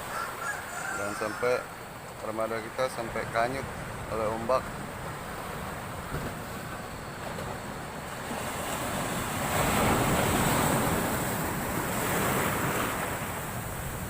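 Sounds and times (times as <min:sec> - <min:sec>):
storm waves breaking on shore: 0:00.0 - 0:14.0
wind buffeting microphone: 0:03.1 - 0:14.0.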